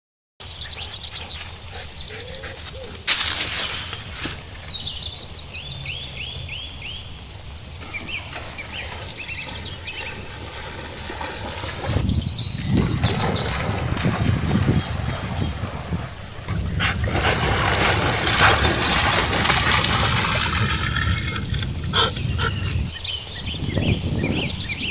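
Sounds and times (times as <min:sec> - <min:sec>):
songbirds chirping: 0:00.4 - 0:24.9
heavy rumble: 0:11.8 - 0:22.9.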